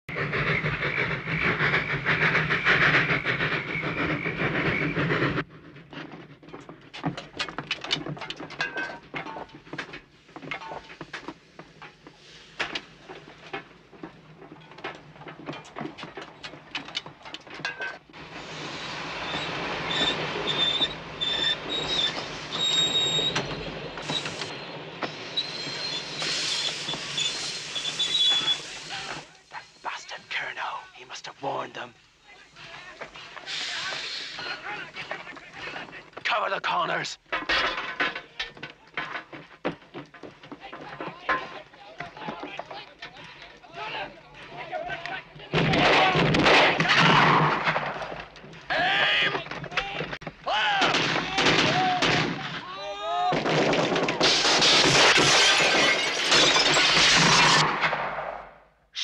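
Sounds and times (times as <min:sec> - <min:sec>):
steam train rushing: 0:00.1 - 0:05.9, 0:18.1 - 0:36.4
high metallic squeals: 0:19.2 - 0:24.7, 0:25.3 - 0:28.8
clicks and rattles: 0:37.3 - 0:43.8.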